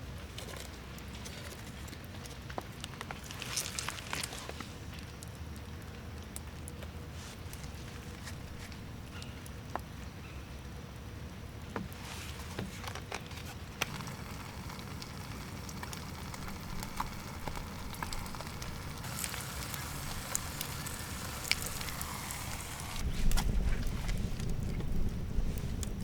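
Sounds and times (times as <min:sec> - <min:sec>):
wood fire crackling: 0:00.0 - 0:26.0
hiss: 0:13.8 - 0:23.1.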